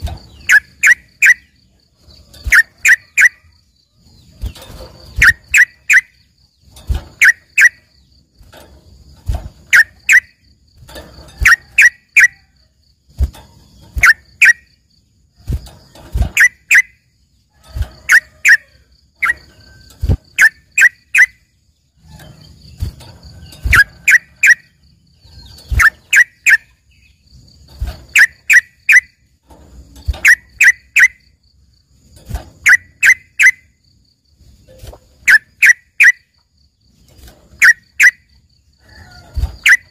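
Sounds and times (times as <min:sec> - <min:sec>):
songbird singing sharp notes: 0:00.0 - 0:08.2, 0:16.3 - 0:17.1, 0:18.0 - 0:27.3, 0:28.1 - 0:29.3, 0:32.6 - 0:33.8.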